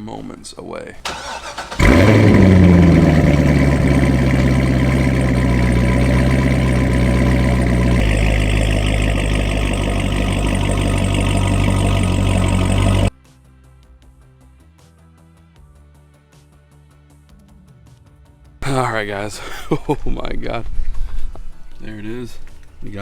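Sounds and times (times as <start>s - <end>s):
car engine idling: 1.1s - 13.1s.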